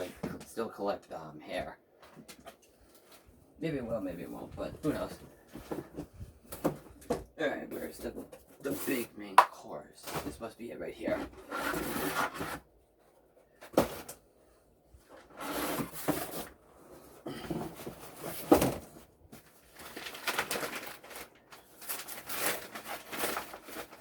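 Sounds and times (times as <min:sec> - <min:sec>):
cardboard rustling and scraping: 0:02.1 - 0:09.2, 0:11.1 - 0:12.7, 0:15.0 - 0:24.0.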